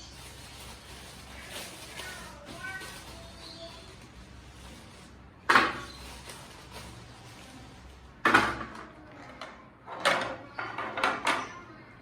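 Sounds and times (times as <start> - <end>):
kitchen containers clattering: 5.4 - 7.0.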